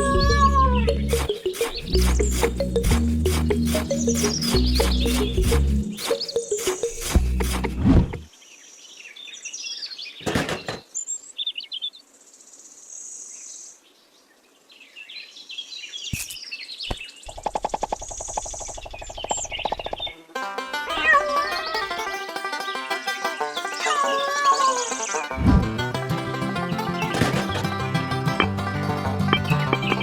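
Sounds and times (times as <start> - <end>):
birds chirping: 0.0 - 7.5, 29.3 - 30.0.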